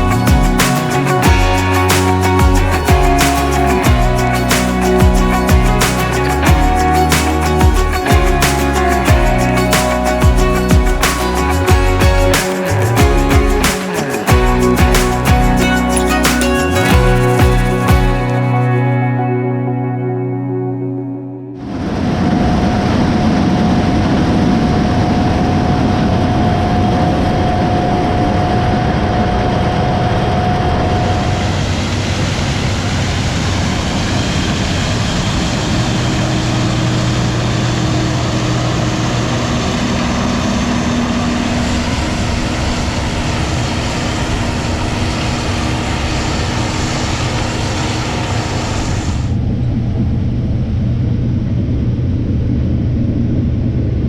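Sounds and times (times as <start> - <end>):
heavy diesel machinery running: 0.0 - 19.0, 29.3 - 49.5.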